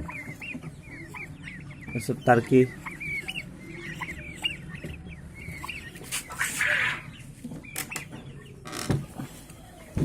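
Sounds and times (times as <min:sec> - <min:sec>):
chicks peeping: 0:00.0 - 0:10.0
scratchy rustle: 0:05.9 - 0:06.7.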